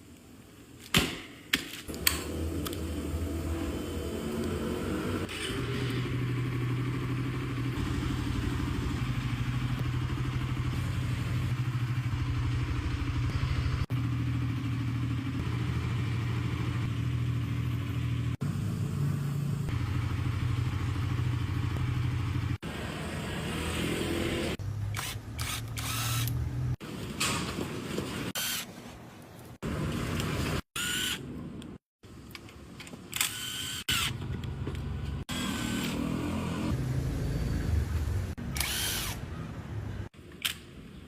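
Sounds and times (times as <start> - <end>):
motorcycle engine idling: 6.0 - 22.6.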